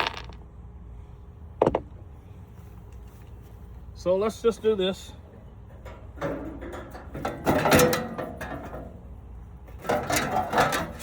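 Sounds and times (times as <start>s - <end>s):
sheet metal clattering and scraping: 5.3s - 11.0s.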